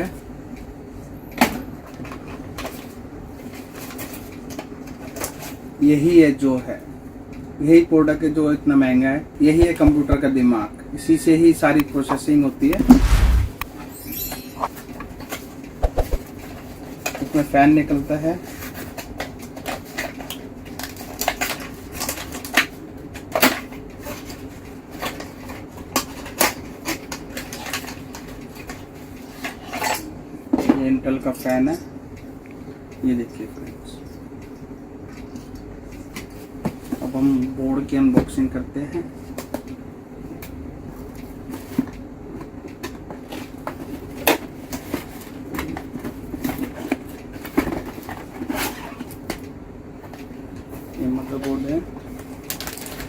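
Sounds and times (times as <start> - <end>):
steady low hum: 12.7 - 13.7.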